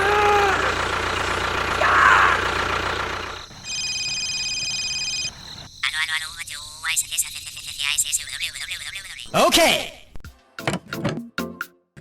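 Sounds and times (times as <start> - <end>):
voice-like cries: 0.0 - 0.8, 1.8 - 2.6
engine running: 0.0 - 5.7.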